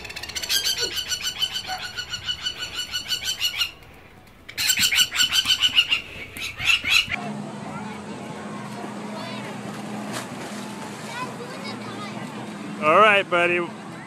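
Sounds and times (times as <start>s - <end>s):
bird shrill alarm calls: 0.0s - 3.8s, 4.6s - 7.2s.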